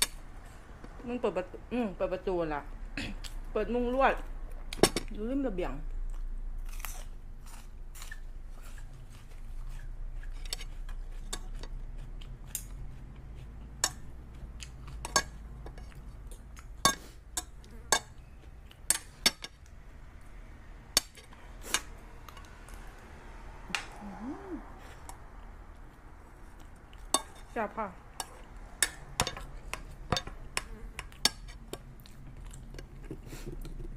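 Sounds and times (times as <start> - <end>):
low steady hum: 0.0 - 33.9
cutlery clinking on dishes: 16.8 - 18.2, 28.2 - 31.6.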